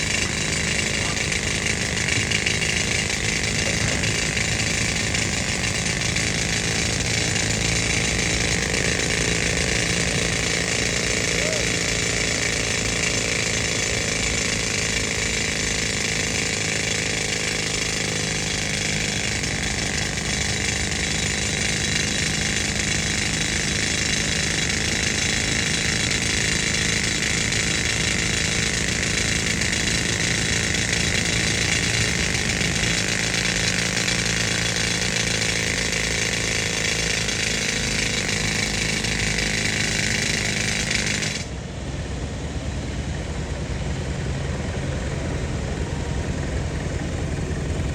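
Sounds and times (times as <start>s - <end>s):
air compressor engine running: 0.0s - 47.9s
pneumatic rock drill: 0.0s - 47.9s.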